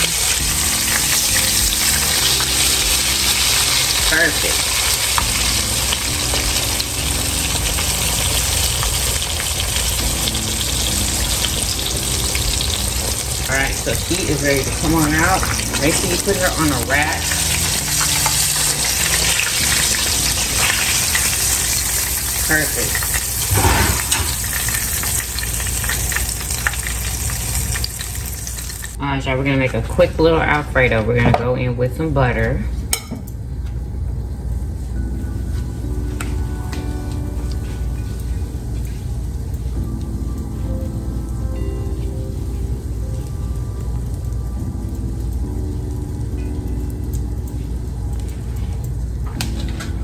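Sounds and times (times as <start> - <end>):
chicken frying in oil: 0.0 - 30.9
low hum: 23.3 - 25.6.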